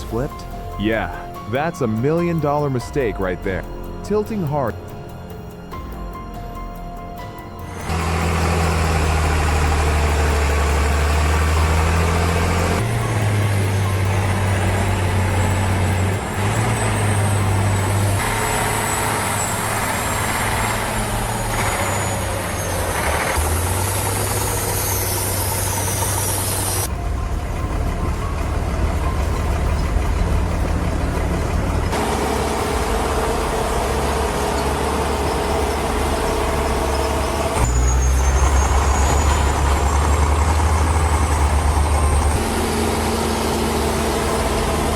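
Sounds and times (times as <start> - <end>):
heavy tractor engines under load: 0.0 - 4.8, 7.2 - 44.9.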